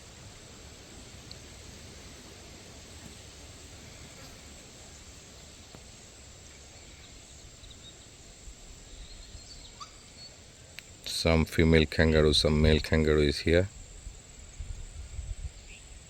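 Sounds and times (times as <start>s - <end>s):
steady background hiss: 0.0s - 16.0s
faint bird chirps: 6.5s - 11.2s.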